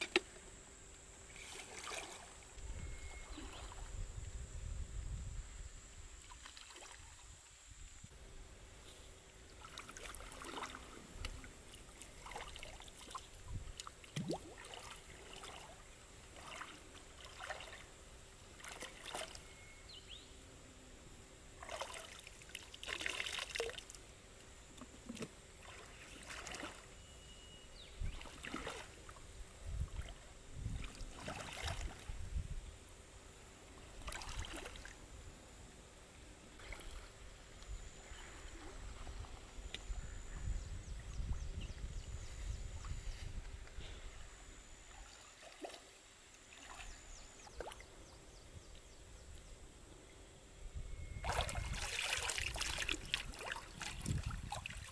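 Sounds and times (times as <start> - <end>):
water splashing and trickling: 1.3 - 4.2, 6.2 - 7.3, 9.5 - 19.5, 21.6 - 27.0, 28.0 - 32.6, 33.9 - 35.1, 36.6 - 39.8, 44.8 - 48.0, 51.2 - 54.9.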